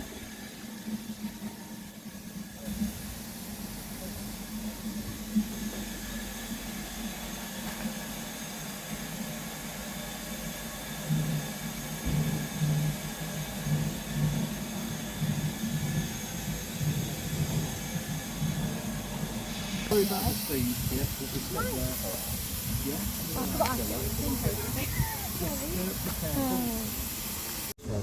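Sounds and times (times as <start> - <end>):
train low rumble: 0.0 - 28.0.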